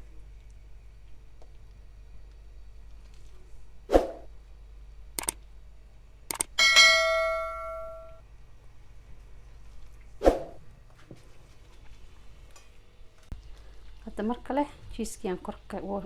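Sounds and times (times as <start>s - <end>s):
light clicks: 5.2s - 5.4s, 6.3s - 6.5s
metal pan ringing when struck: 6.6s - 8.2s.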